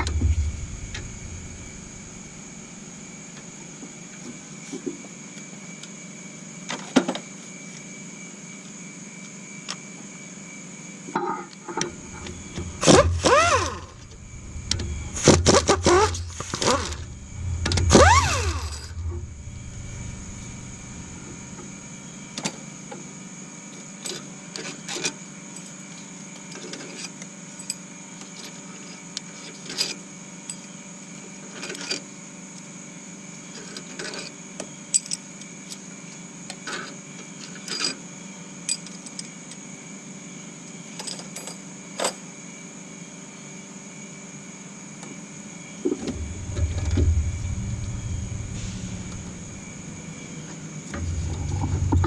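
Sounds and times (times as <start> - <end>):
low rumble of handling: 0.0 - 3.0, 11.9 - 22.4, 45.9 - 52.0
steady workshop hum: 0.0 - 6.6, 11.6 - 26.3, 45.2 - 52.0.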